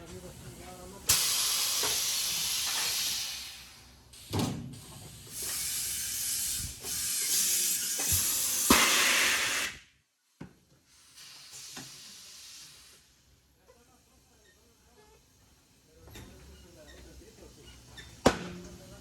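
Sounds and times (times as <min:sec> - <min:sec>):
compressed air hissing: 0:01.1 - 0:09.9, 0:10.9 - 0:13.3.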